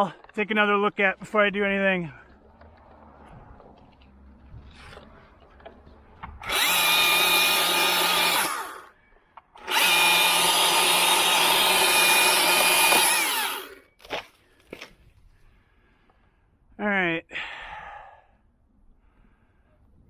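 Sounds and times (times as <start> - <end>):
chainsaw cutting wood: 6.2 - 9.0, 9.6 - 14.8.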